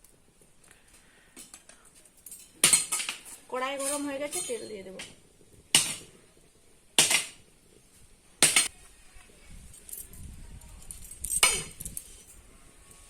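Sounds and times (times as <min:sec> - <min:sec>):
metal utensils clinking on pan: 0:02.2 - 0:05.2.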